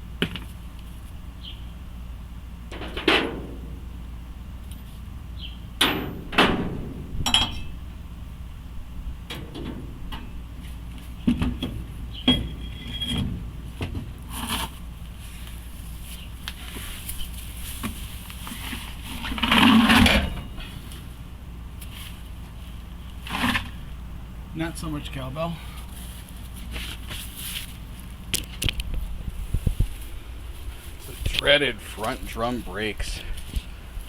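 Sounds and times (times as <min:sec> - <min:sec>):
metal tools knocking and clanking: 0:07.2 - 0:07.7, 0:11.4 - 0:13.3.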